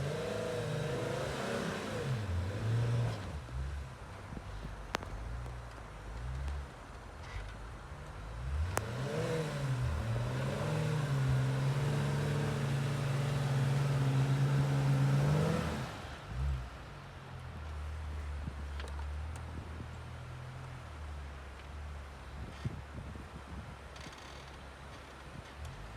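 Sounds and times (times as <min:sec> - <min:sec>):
jeep engine revving: 0:00.0 - 0:03.8, 0:08.4 - 0:16.9.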